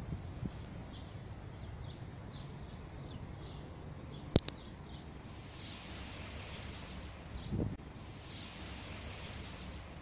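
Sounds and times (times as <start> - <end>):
small birds chirping: 0.0 - 10.0
sharp double click: 4.3 - 4.6.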